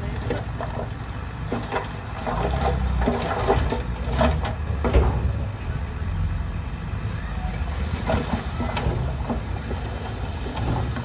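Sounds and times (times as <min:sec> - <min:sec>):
diesel engine running: 0:00.0 - 0:11.0
metallic knocks and clanks: 0:01.5 - 0:05.5.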